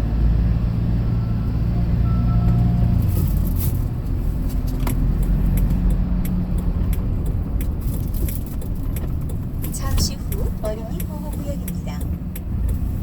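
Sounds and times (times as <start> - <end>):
truck engine and road rumble: 0.0 - 13.0
light clicks and rattles: 4.5 - 13.0.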